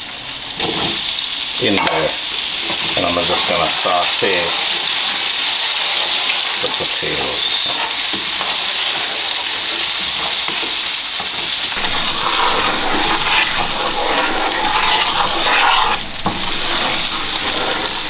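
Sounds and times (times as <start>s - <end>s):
potatoes sizzling in oil: 0.0s - 18.0s
wooden spoon stirring: 11.7s - 18.0s.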